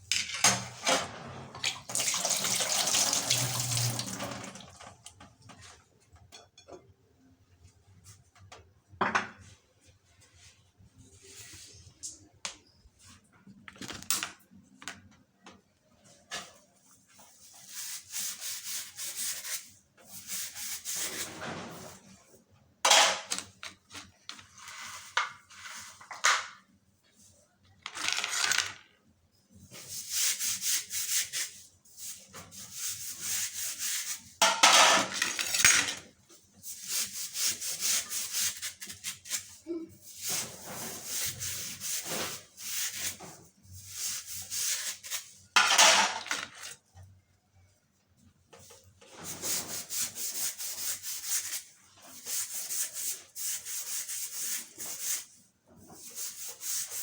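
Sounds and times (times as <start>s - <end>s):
rubbing or scraping strokes: 16.1s - 22.3s, 24.4s - 26.2s, 36.7s - 46.6s, 49.0s - 57.0s.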